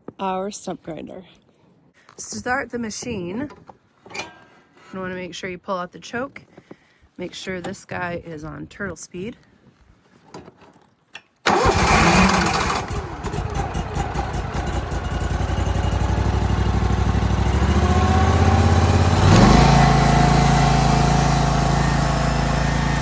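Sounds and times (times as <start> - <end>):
stump grinder engine starting: 11.5 - 23.0.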